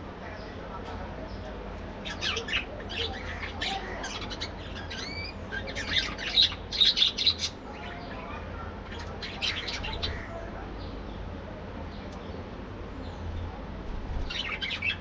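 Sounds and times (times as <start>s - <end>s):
budgerigars chattering and squawking: 1.3s - 11.0s, 14.0s - 15.0s.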